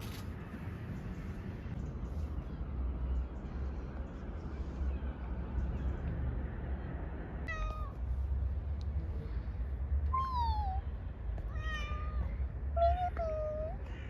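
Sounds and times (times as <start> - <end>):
meow-like animal calls: 10.1 - 10.8, 11.5 - 13.9.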